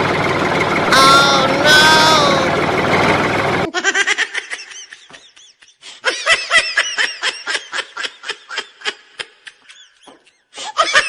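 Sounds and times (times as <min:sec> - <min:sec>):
high-pitched cartoon laughter: 0:03.7 - 0:11.0.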